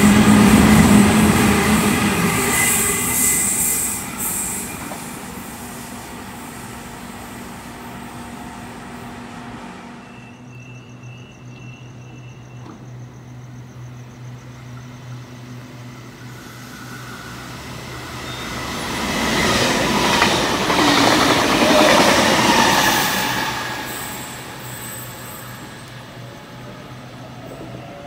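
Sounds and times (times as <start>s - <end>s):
train wheels rushing on rail: 0.0s - 10.6s, 11.4s - 28.0s
high wheel squeal: 1.4s - 5.2s, 10.0s - 19.8s, 21.6s - 26.3s.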